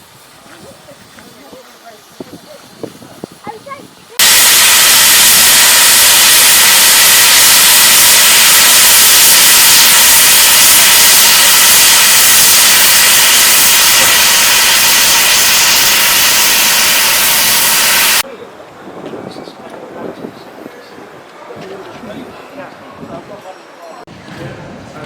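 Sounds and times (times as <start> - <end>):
steam locomotive blowing off steam: 4.2 - 18.2.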